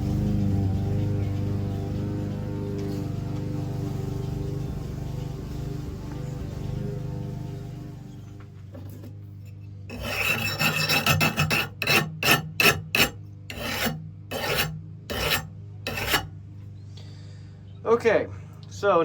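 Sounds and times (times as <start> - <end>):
metal file rasping on knife blade: 9.5 - 16.3.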